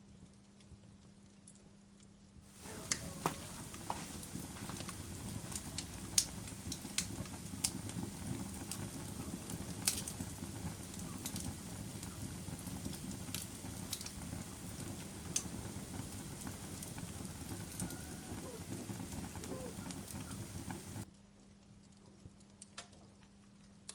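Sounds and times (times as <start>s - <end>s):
burning wood popping: 2.5s - 21.1s
campfire burning: 2.5s - 21.1s.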